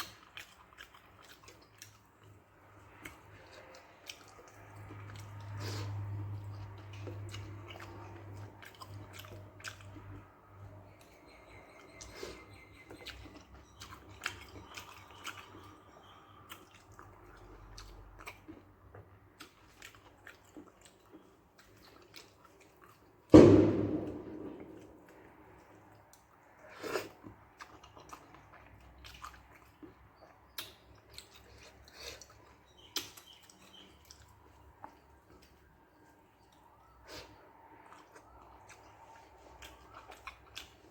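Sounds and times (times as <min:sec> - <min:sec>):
person chewing: 0:00.0 - 0:40.9
loud thump: 0:23.3 - 0:24.8.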